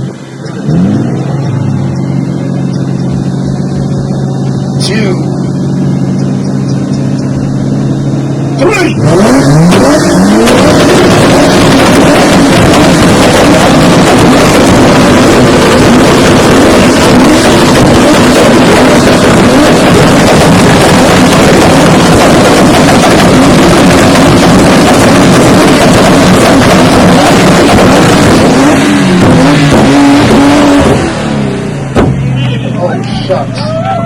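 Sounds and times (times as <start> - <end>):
car engine revving on limiter: 0.0 - 32.8
exhaust crackling and banging: 9.1 - 32.6.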